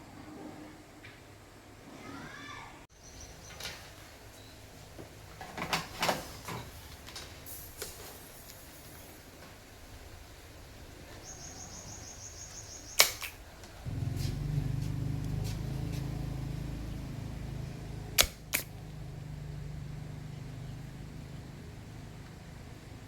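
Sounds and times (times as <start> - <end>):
loud click: 13.0 - 13.4, 18.2 - 18.8
low electrical hum: 13.8 - 23.0
speaker sharp pops: 18.2 - 18.9.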